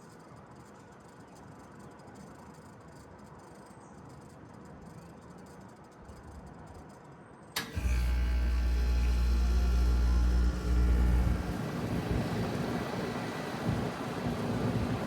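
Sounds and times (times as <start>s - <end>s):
heat pump humming: 7.6s - 15.0s.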